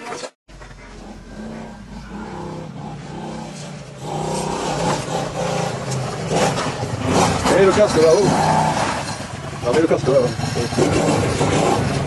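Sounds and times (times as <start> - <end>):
dirt bike engine revving: 0.8 - 12.0.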